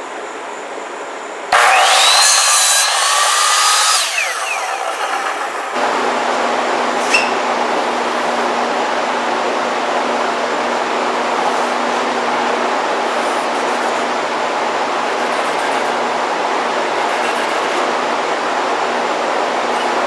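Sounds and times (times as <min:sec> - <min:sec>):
mechanical rushing noise: 0:01.6 - 0:19.7.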